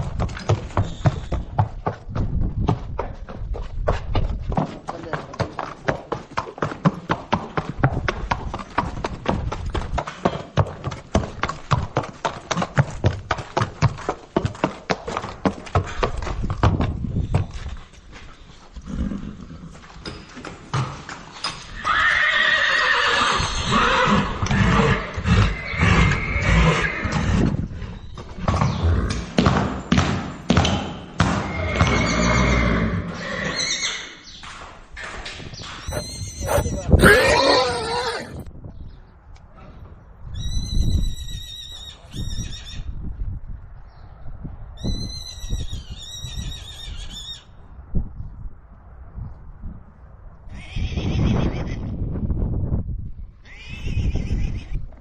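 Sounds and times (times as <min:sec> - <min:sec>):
horse hooves clip-clopping: 0:00.0 - 0:22.5, 0:34.5 - 0:37.4
horse whinnying: 0:21.8 - 0:27.4, 0:31.5 - 0:34.1, 0:35.9 - 0:38.5.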